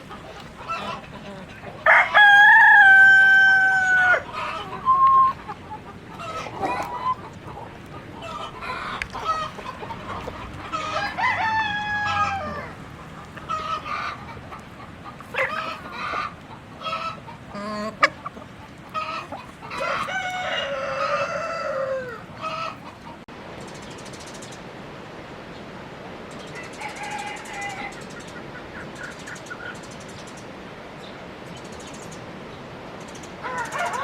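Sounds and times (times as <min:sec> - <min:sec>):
chickens clucking: 0:00.0 - 0:23.3, 0:26.3 - 0:30.5, 0:33.0 - 0:34.0
rooster crowing: 0:01.8 - 0:05.0, 0:10.7 - 0:12.8, 0:19.7 - 0:22.3, 0:26.6 - 0:27.9, 0:33.4 - 0:34.0.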